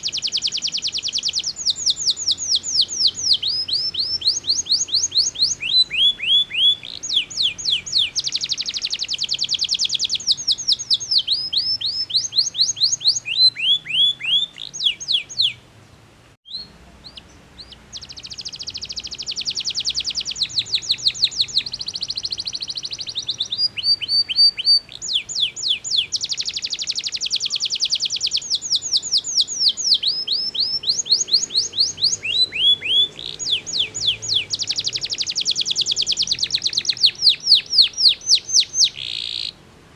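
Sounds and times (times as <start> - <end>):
canary singing: 0.0 - 39.6.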